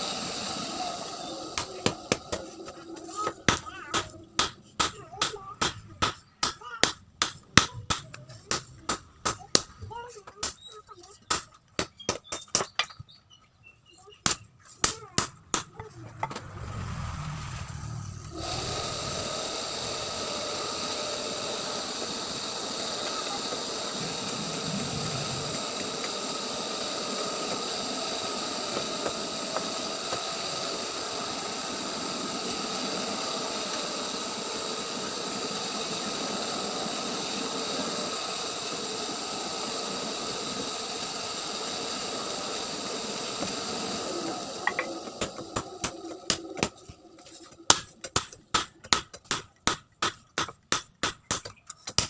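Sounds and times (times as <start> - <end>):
machine hiss and whir: 0.0 - 9.7, 14.4 - 52.0.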